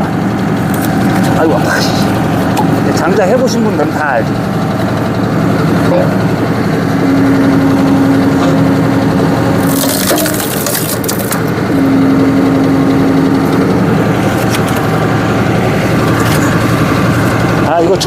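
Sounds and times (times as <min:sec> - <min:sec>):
tractor engine whine: 0:00.0 - 0:18.0
wood cracking and splintering: 0:09.6 - 0:11.4.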